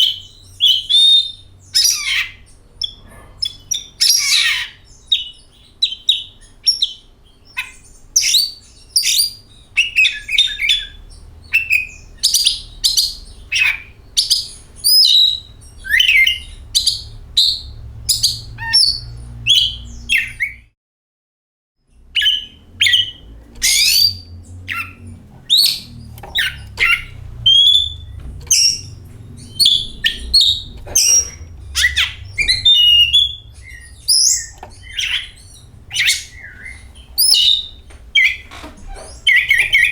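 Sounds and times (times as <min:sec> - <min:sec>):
songbird singing: 0:00.0 - 0:20.7, 0:21.9 - 0:39.9
low background rumble: 0:08.7 - 0:20.6, 0:22.0 - 0:39.9.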